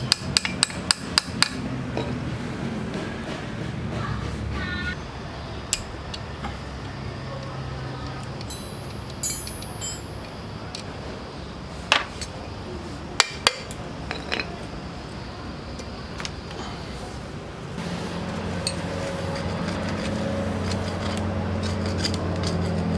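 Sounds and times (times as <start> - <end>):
metal tools clinking: 8.4 - 10.4, 18.2 - 22.9
steady low hum: 14.7 - 22.9.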